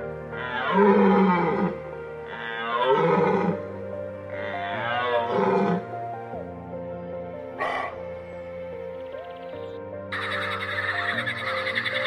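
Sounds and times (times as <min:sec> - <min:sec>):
background music: 0:00.0 - 0:12.0
drawn-out animal calls: 0:07.6 - 0:08.0, 0:10.1 - 0:12.0.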